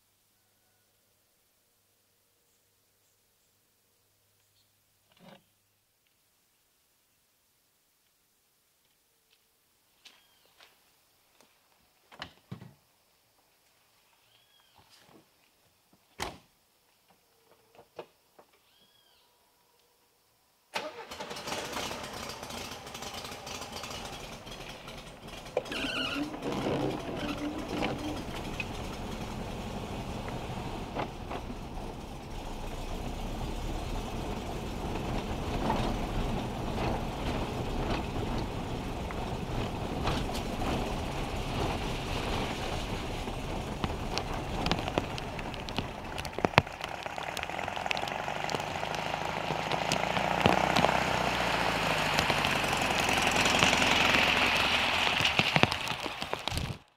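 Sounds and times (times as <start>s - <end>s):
heavy rain on a car: 22.0s - 56.8s
steady low rumble: 26.4s - 48.3s.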